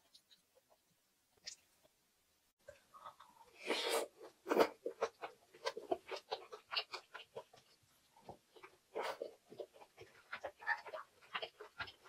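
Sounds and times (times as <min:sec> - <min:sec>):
chewing food: 0:02.6 - 0:12.0.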